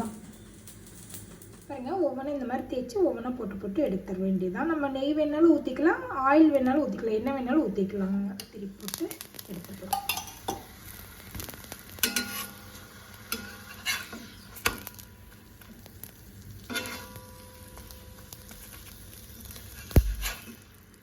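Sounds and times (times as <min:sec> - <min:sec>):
flatbread sizzling on griddle: 0:08.8 - 0:21.0
metal clinks and scrapes on pan: 0:09.9 - 0:10.7, 0:12.0 - 0:12.6, 0:16.6 - 0:17.4.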